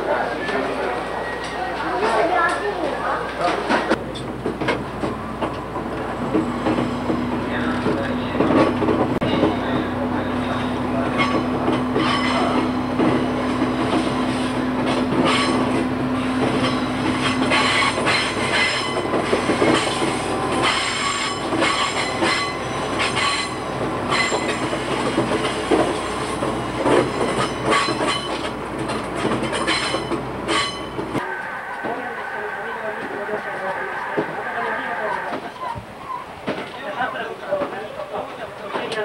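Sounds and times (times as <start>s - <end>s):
train running rumble: 0.0s - 36.8s
train wheels clattering over rails: 3.3s - 31.2s.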